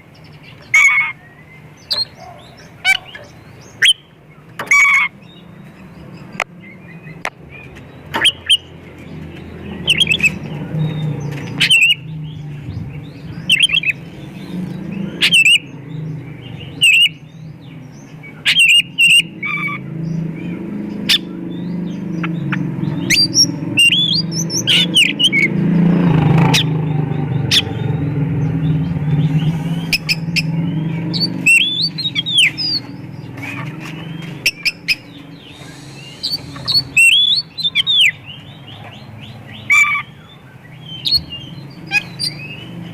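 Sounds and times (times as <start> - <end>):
bird singing: 0.0 - 42.9
steady low hum: 35.1 - 37.6.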